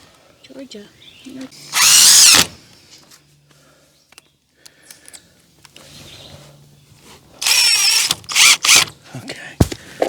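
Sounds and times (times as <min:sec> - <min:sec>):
screw gun driving a screw: 0:01.8 - 0:02.5, 0:07.4 - 0:08.9.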